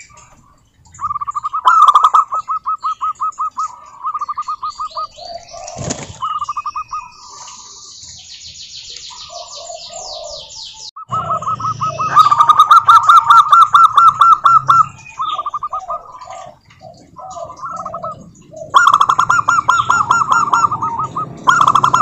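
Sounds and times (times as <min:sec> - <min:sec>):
doves cooing: 0:00.0 - 0:07.9, 0:09.1 - 0:22.0
small birds chirping: 0:00.0 - 0:22.0.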